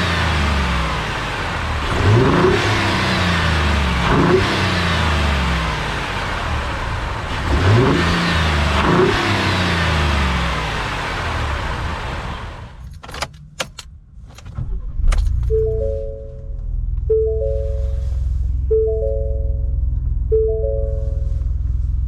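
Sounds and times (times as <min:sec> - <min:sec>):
truck engine idling and revving: 0:00.0 - 0:22.0.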